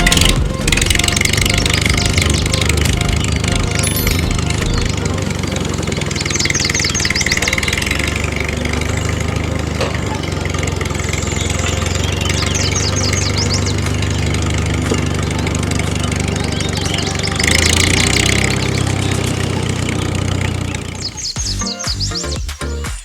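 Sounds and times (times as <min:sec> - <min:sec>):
engine idling: 0:00.0 - 0:22.8
quick high chirps: 0:03.6 - 0:05.0.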